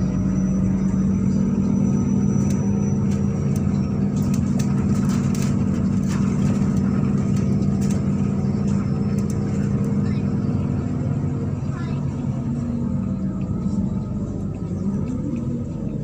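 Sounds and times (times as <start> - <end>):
bus body rattles: 0.0 - 16.0
bus engine drone: 0.0 - 16.0.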